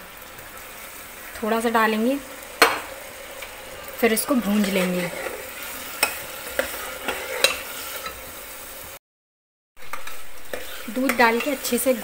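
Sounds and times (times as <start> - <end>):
meat and milk sizzling: 0.0 - 9.0, 9.8 - 12.0
ladle scraping a pot: 4.6 - 8.2, 9.8 - 11.8.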